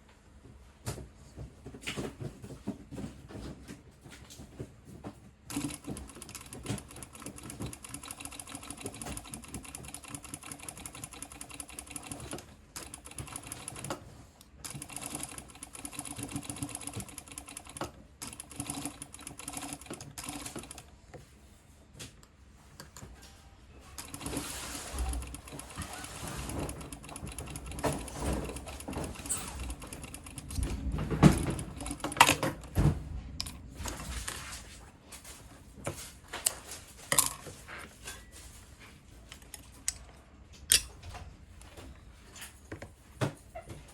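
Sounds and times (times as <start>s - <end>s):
sewing machine stitching: 5.5s - 20.9s, 24.0s - 32.8s.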